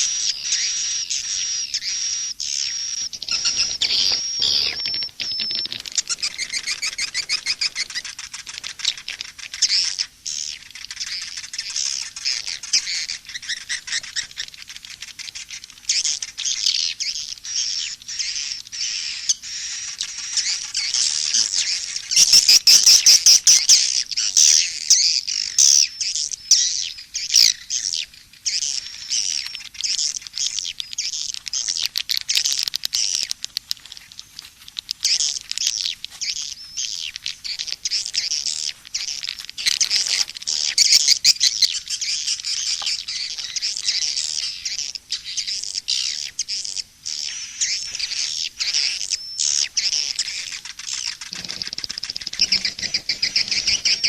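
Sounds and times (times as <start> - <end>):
swiftlets twittering: 2.8 - 9.8, 50.2 - 54.0.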